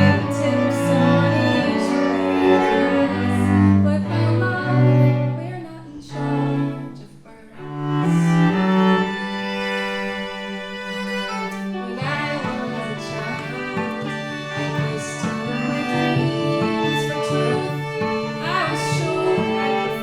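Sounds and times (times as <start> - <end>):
low cello line: 0.0 - 20.0
slow bowed strings music: 0.0 - 20.0.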